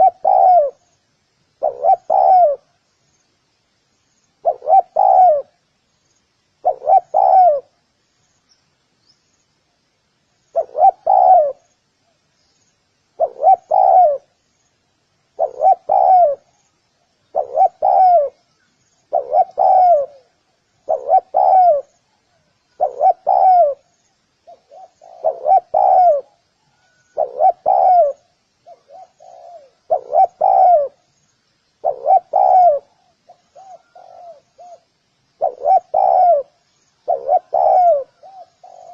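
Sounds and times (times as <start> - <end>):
dove cooing: 0.0 - 0.9, 1.6 - 2.8, 4.4 - 5.6, 6.6 - 7.8, 10.5 - 11.7, 13.1 - 14.4, 15.3 - 16.6, 17.2 - 31.1, 31.8 - 38.9.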